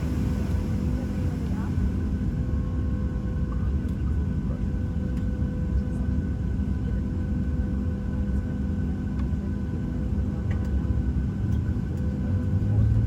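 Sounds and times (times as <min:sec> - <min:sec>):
faint steady whines: 0:00.0 - 0:04.5
airplane cabin rumble: 0:00.0 - 0:06.4.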